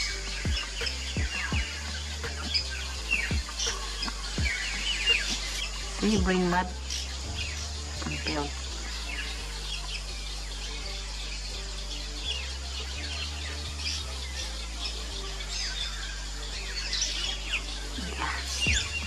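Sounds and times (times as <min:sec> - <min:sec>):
birds twittering: 0:00.0 - 0:19.0
low steady background tone: 0:00.0 - 0:19.0.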